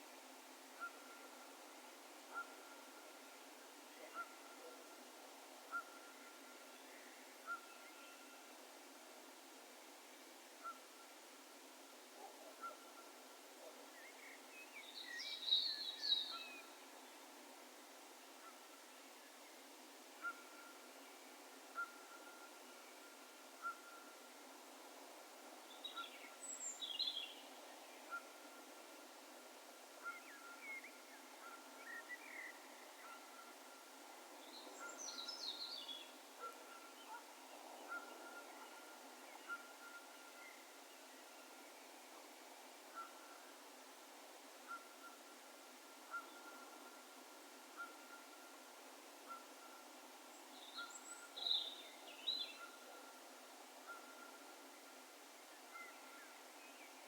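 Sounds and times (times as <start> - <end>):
steady background hiss: 0.0 - 57.0
distant bird calls: 21.7 - 24.2, 34.5 - 40.8, 44.6 - 54.7.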